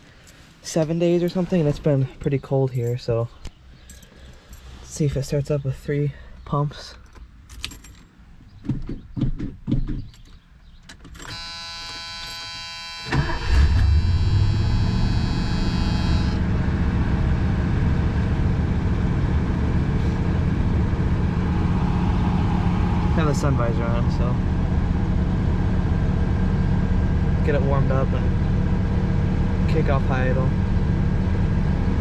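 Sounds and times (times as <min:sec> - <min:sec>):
dashboard warning buzzer: 0:11.2 - 0:16.5
car engine cranking and idling: 0:12.4 - 0:32.0.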